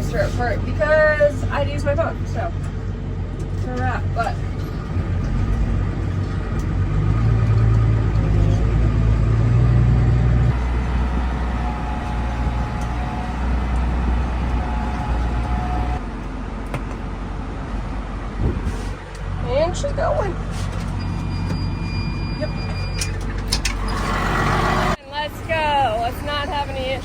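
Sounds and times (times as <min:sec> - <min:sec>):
tractor engine running: 0:00.0 - 0:27.0
high steady whine: 0:10.5 - 0:16.0.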